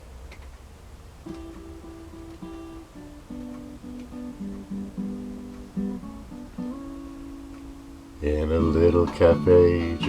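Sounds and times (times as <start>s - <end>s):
acoustic guitar playing: 1.2s - 10.0s.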